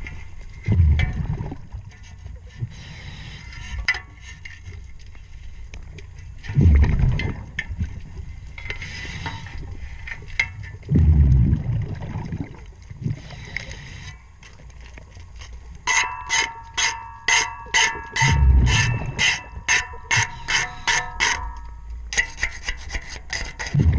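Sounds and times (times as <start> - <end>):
scuba exhaust bubbles rumbling: 0.0 - 3.0, 6.4 - 10.1, 10.7 - 15.4, 18.2 - 19.2
faint clicks and scraping: 0.0 - 11.7, 12.4 - 23.9
tool scraping metal propeller: 8.6 - 9.6, 15.9 - 23.9.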